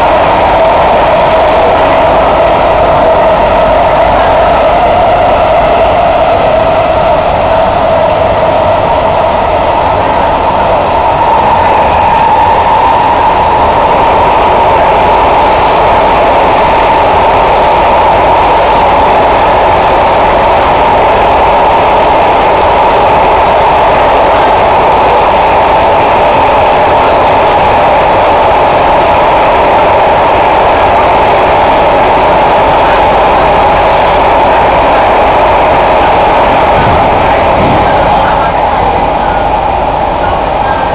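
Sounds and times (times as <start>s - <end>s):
metro train running noise: 0.0s - 40.9s.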